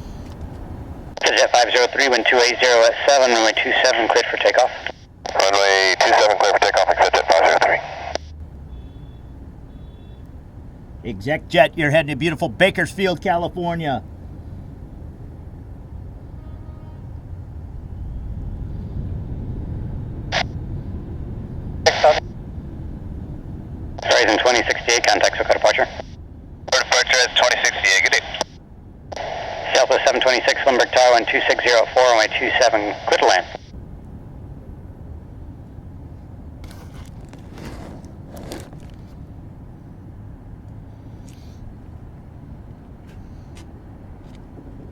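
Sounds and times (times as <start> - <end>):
jet engines rumbling: 0.0 - 44.9
rustling scrapes: 36.6 - 39.2.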